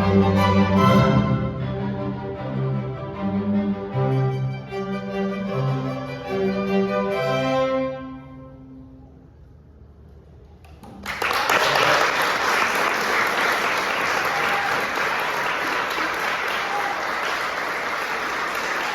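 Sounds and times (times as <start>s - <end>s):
audience applause: 10.9s - 18.9s.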